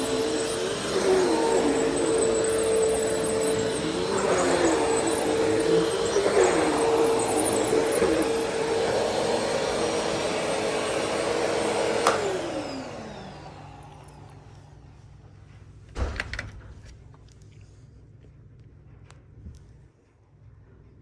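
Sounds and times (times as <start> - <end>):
motor winding down whine: 0.0 - 14.5
vacuum cleaner running: 0.0 - 15.3
vacuum cleaner switch click: 11.3 - 12.9.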